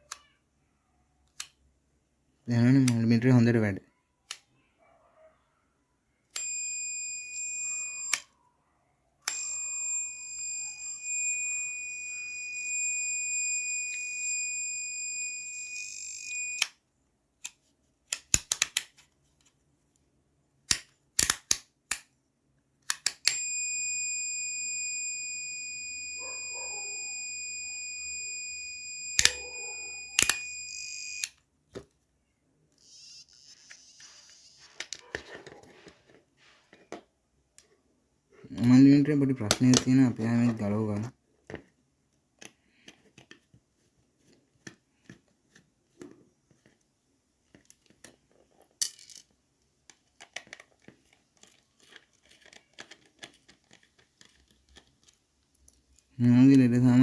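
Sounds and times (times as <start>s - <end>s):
high-pitched multimeter beep: 6.4s - 8.2s, 9.3s - 16.7s, 23.3s - 31.3s, 32.8s - 34.7s.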